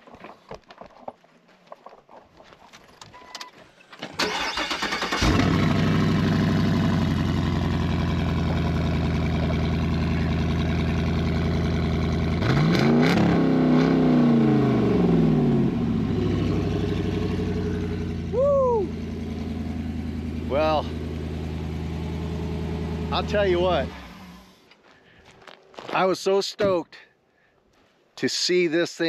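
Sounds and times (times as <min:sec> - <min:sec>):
engine idling and revving: 0:04.3 - 0:24.7.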